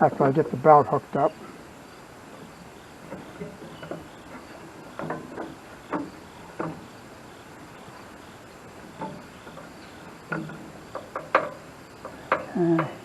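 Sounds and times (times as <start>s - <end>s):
knocks and clunks of parts handled: 2.4s - 6.9s, 8.8s - 13.0s.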